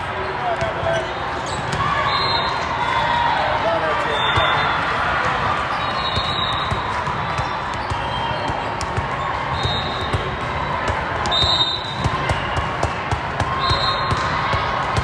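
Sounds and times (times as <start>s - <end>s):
murmuring crowd chatter: 0.0s - 15.0s
sneaker squeaks: 0.2s - 2.7s, 4.0s - 10.5s, 13.5s - 14.3s.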